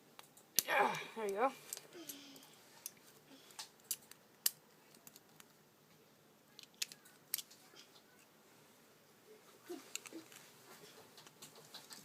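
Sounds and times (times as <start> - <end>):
plastic parts clicking: 2.8 - 5.6, 6.6 - 7.6, 9.9 - 10.4.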